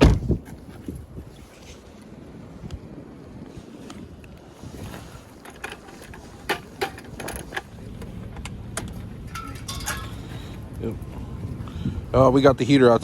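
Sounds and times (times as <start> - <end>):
steady low rumble: 6.3 - 13.0.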